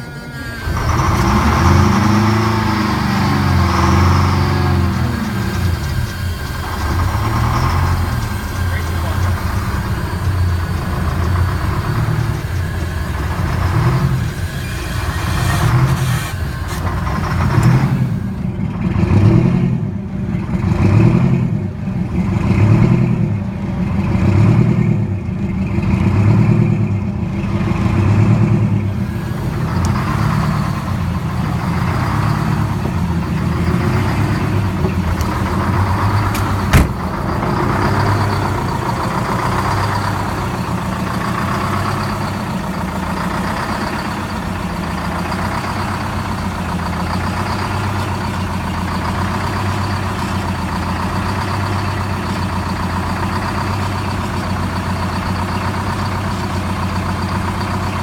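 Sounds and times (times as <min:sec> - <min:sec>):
thin high whine: 0:00.0 - 0:20.5, 0:27.5 - 0:46.0
diesel engine surging unevenly: 0:00.0 - 0:58.0.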